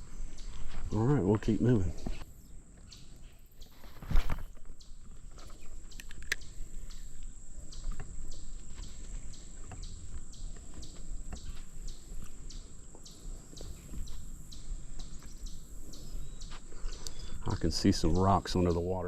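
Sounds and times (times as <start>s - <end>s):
footsteps: 0.0s - 2.3s, 3.6s - 5.9s, 7.8s - 16.9s.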